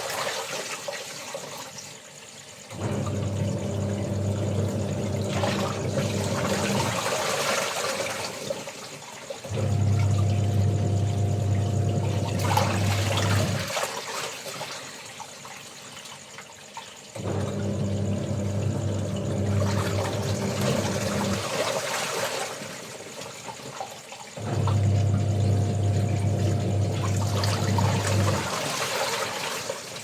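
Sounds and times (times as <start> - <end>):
water sloshing and splashing: 0.0 - 30.0
washing machine motor humming: 2.7 - 7.4, 9.5 - 13.8, 17.2 - 21.8, 24.4 - 28.9.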